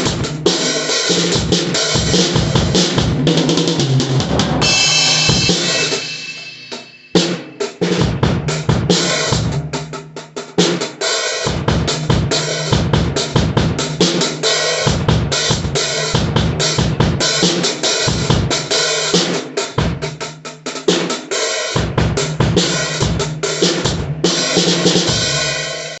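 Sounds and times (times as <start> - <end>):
acoustic drum kit playing: 0.0 - 26.0
cymbal crash: 2.4 - 7.7.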